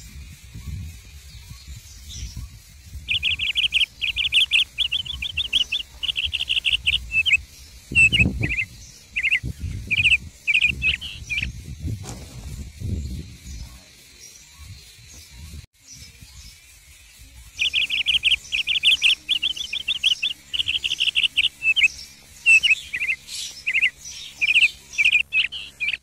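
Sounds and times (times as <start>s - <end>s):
low rumbling noise: 0.0s - 16.4s
bird chirping rapidly: 0.1s - 26.0s.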